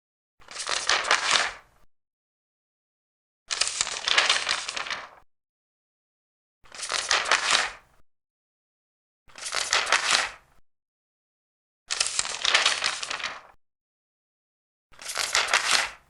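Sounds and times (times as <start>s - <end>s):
paper pages turning: 0.4s - 1.7s, 3.5s - 5.2s, 6.7s - 7.8s, 9.3s - 10.4s, 11.9s - 13.6s, 15.0s - 16.0s.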